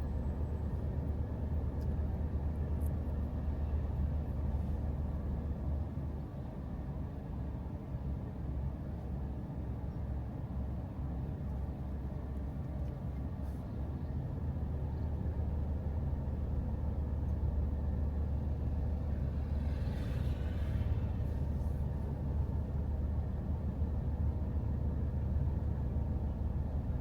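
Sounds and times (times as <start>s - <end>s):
low vehicle rumble: 10.9s - 27.0s.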